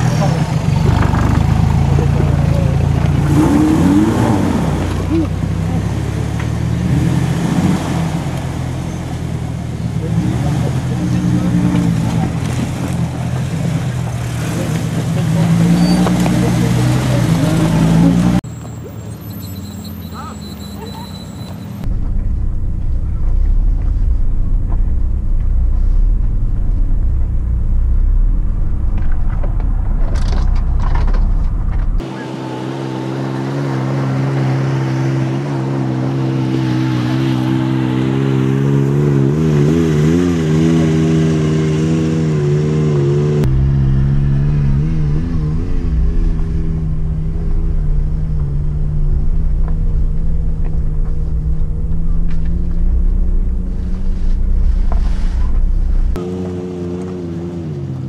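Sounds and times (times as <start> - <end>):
engine rumble inside vehicle: 0.0 - 39.3, 43.2 - 58.0
engine heard from outside: 0.0 - 58.0.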